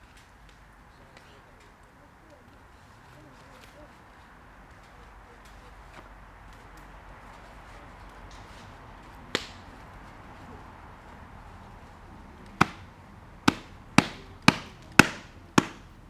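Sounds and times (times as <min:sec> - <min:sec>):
chopping strokes: 0:12.6 - 0:12.9, 0:13.5 - 0:15.9.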